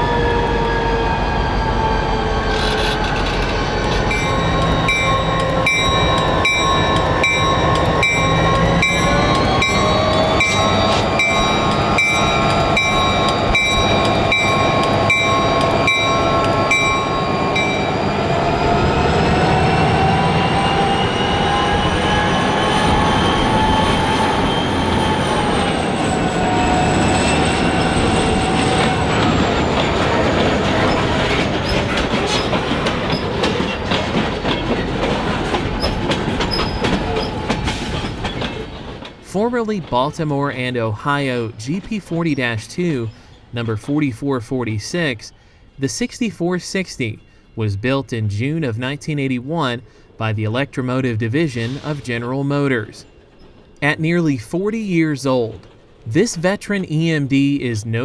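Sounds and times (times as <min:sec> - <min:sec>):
locomotive whining tones: 0:00.0 - 0:58.0
wheels clicking over rail joints: 0:02.5 - 0:18.0, 0:27.2 - 0:40.4.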